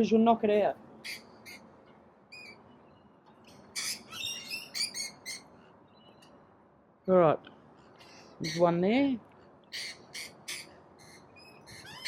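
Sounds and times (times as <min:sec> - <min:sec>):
lorikeets chattering calls: 0:01.0 - 0:01.7, 0:02.3 - 0:06.2, 0:08.0 - 0:08.8, 0:09.6 - 0:12.0.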